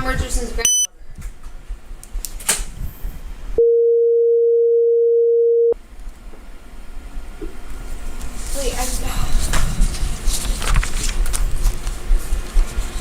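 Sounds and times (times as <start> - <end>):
censor bleep tone: 0.7 - 0.9, 3.6 - 5.8.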